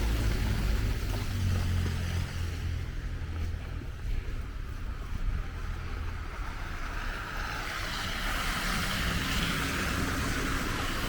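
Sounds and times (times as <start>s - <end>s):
low steady rumble: 0.0s - 7.6s
tyre hiss on slushy road: 4.1s - 11.0s.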